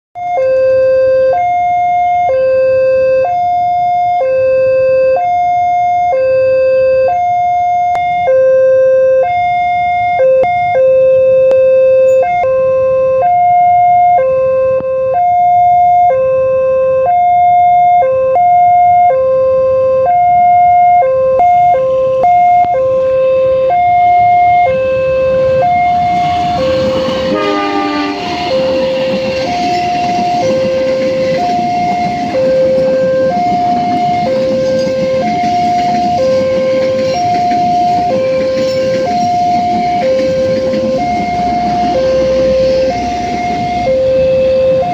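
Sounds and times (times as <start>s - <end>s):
two-tone crossing alarm: 0.2s - 44.9s
approaching train rumble: 21.8s - 44.9s.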